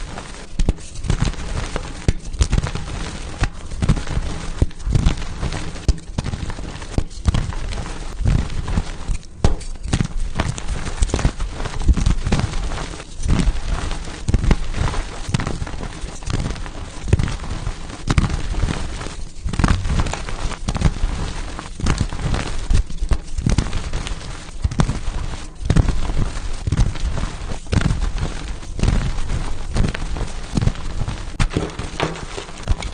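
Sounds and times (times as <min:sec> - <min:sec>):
chalk being crushed: 0:00.0 - 0:32.9.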